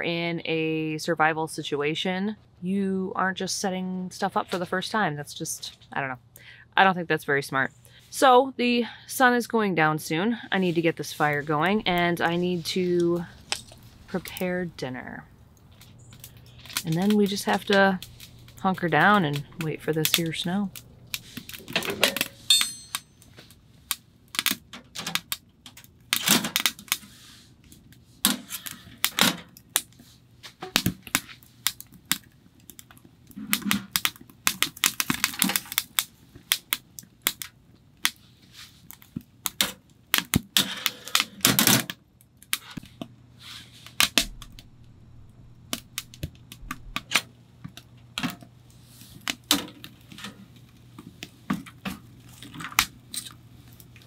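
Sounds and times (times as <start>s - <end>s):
faint low hum: 42.8s - 48.8s.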